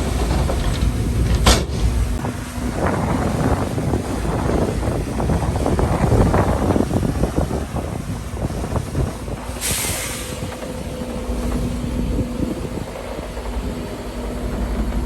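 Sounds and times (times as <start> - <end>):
rattling and clanking: 0.0 - 4.8
diesel machinery running: 0.0 - 15.0
air brakes hissing: 9.5 - 10.6.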